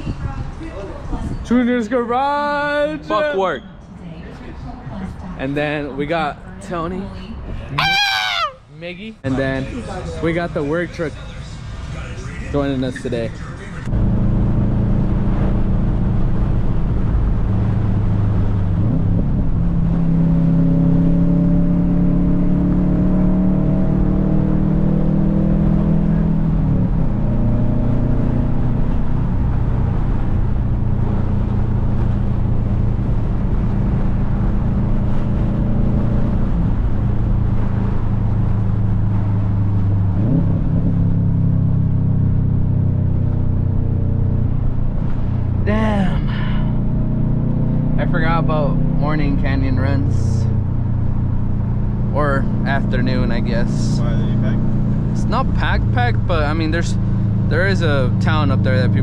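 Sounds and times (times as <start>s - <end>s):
car engine drone: 0.0s - 59.0s
road noise inside car: 0.0s - 59.0s.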